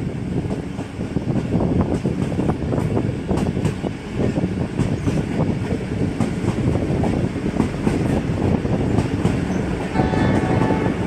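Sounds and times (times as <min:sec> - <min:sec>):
train wheels rumbling on track: 0:00.0 - 0:11.0
rail clicks and knocks: 0:00.4 - 0:11.0.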